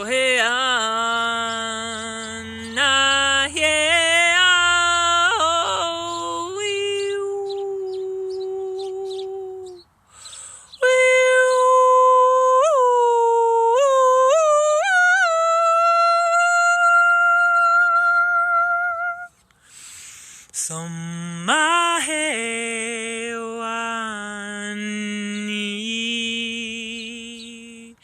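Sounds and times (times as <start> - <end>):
woman singing wordlessly: 0.0 - 19.3, 20.6 - 28.0.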